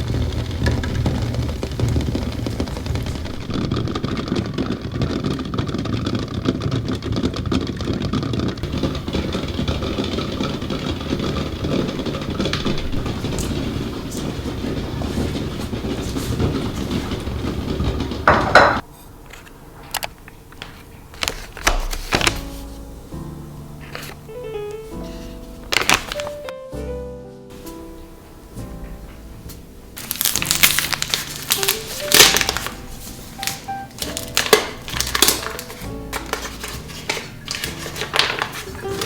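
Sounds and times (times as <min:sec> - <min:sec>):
kitchen appliance motor running: 0:00.0 - 0:06.2, 0:08.6 - 0:18.8.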